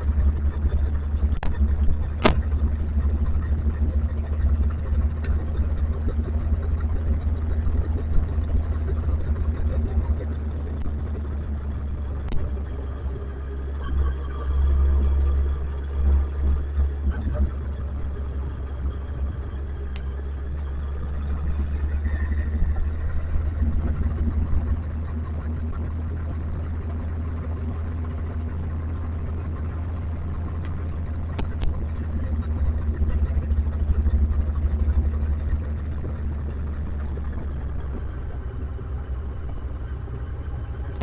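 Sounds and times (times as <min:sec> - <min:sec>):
motorcycle engine rumbling: 0:00.0 - 0:41.0
sharp clicks: 0:12.2 - 0:12.5.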